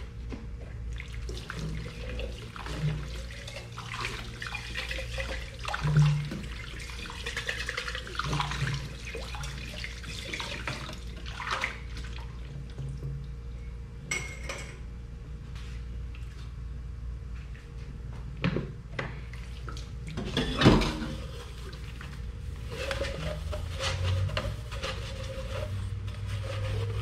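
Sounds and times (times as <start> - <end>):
dishes and utensils clinking: 14.1 - 14.8.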